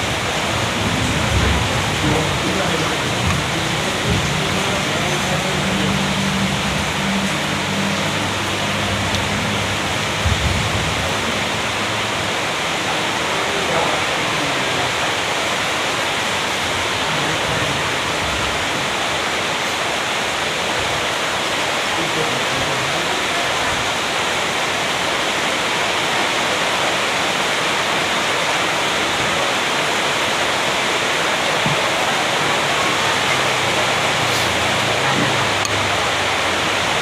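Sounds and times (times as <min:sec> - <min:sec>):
steady rushing noise: 0:00.0 - 0:37.0.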